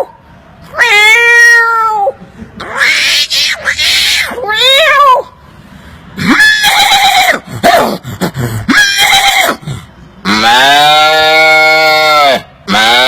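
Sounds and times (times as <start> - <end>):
man imitating animal calls: 6.2 - 13.0.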